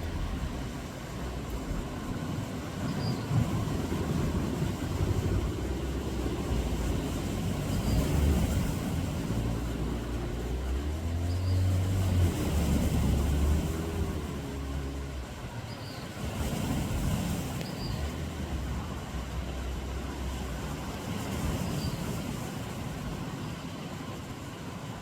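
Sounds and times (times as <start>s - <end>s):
wavering engine tone: 0.0s - 16.0s
low rumble of motor vehicles: 0.0s - 25.0s.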